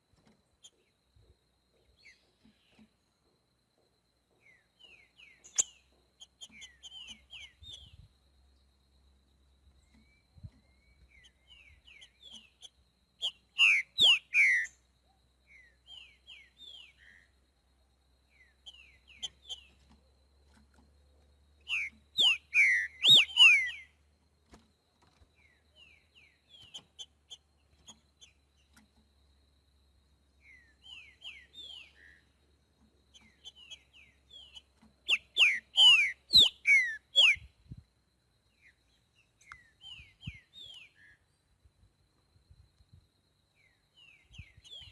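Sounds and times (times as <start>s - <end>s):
soft short bird chirps: 4.4s - 8.1s, 9.8s - 17.4s, 18.3s - 29.0s, 30.4s - 32.4s, 33.1s - 37.8s, 38.5s - 41.2s
bird whistling song phrases: 13.2s - 14.7s, 21.6s - 24.0s, 30.4s - 32.2s, 33.2s - 37.5s.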